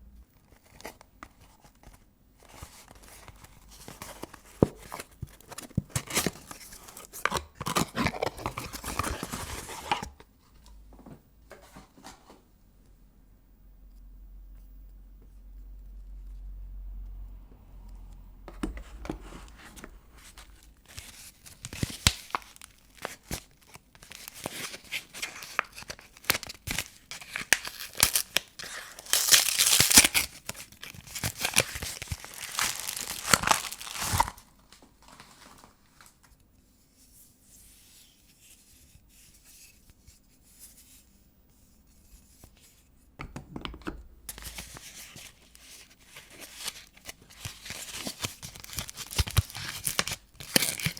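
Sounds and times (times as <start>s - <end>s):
wrapper tearing and crinkling: 20.8s - 34.5s, 44.3s - 50.9s.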